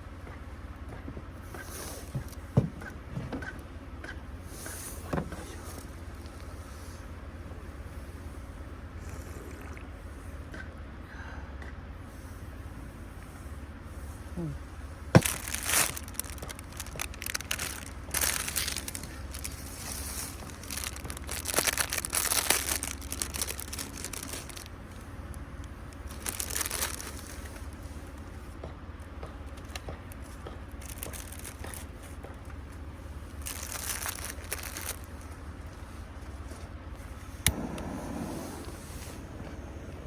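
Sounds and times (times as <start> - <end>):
steady low hum: 0.0 - 40.0
crinkling and rustling handling: 15.0 - 40.0.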